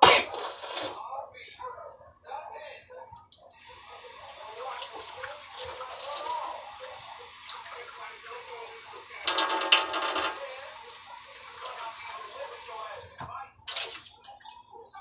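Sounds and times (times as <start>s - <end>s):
water running from a tap: 0.3s - 1.0s, 3.4s - 14.4s
splashing and clattering: 9.2s - 10.6s, 13.7s - 14.5s.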